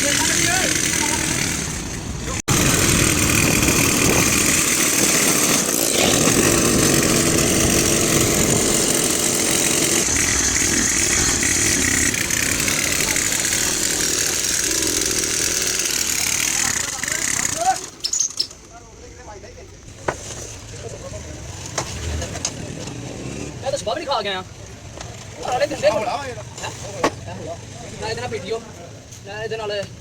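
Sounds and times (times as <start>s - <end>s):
engine running loudly: 0.0s - 17.4s.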